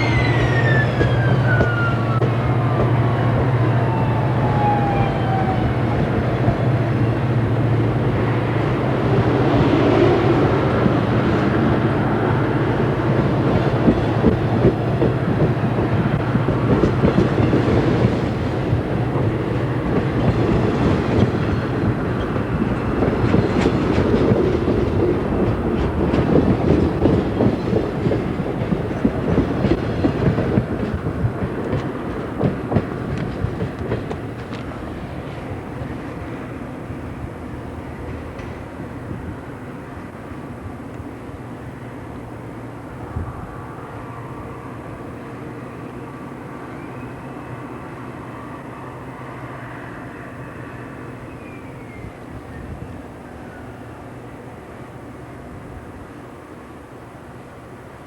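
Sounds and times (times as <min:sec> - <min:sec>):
clickety-clack of train wheels: 0:00.0 - 0:04.0, 0:05.3 - 0:36.6, 0:37.8 - 0:41.1.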